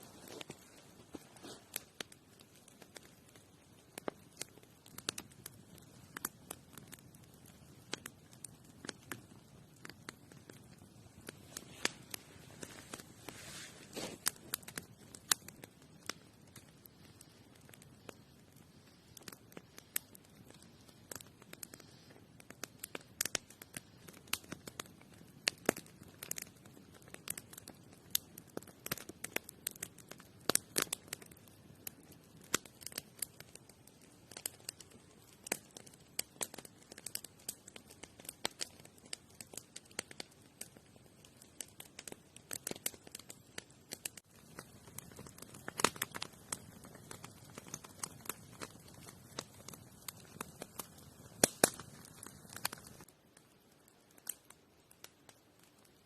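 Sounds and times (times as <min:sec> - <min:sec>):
sharp crackles and rustling: 0:00.0 - 0:03.2, 0:09.8 - 0:15.6.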